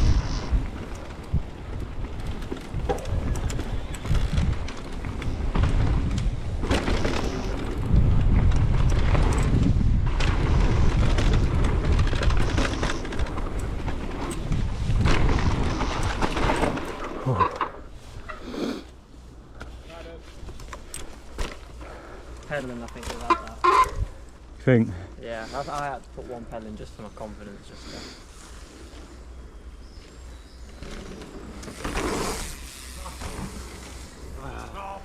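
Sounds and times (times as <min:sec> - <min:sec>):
wind buffeting microphone: 0:00.0 - 0:16.4
bike tyres rumbling: 0:00.0 - 0:35.0.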